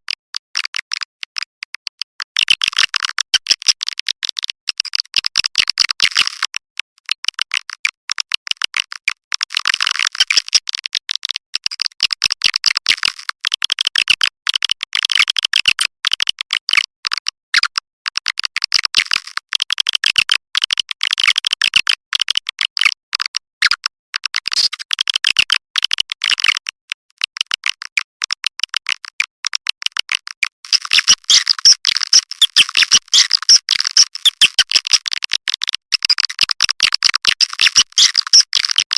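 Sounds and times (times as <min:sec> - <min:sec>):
swiftlets twittering and clicking: 0:30.6 - 0:38.9.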